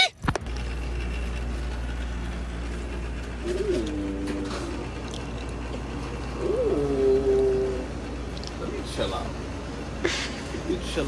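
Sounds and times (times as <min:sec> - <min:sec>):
steady low hum: 0:00.2 - 0:11.0
cooing calls: 0:03.2 - 0:09.3.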